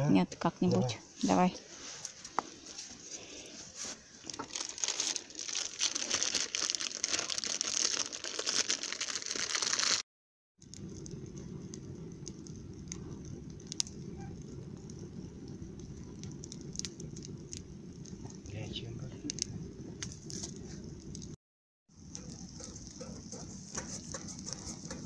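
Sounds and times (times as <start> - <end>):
campfire crackling: 1.6 - 10.0, 10.6 - 25.0
low rumble: 10.6 - 21.4.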